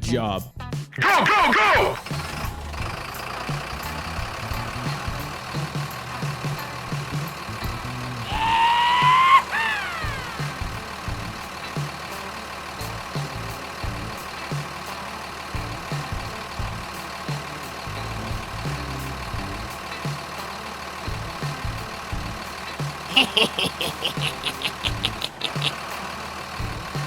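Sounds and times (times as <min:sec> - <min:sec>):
engine idling with uneven throb: 0:01.1 - 0:27.0.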